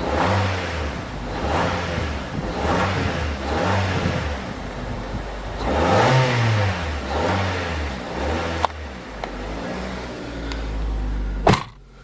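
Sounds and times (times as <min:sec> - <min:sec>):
car engine revving: 0:00.0 - 0:12.0
loud thump: 0:11.4 - 0:11.8.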